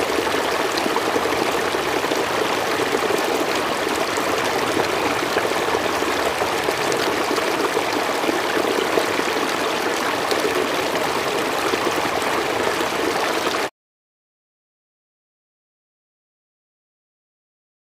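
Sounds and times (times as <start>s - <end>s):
river water flowing over stones: 0.0s - 13.7s.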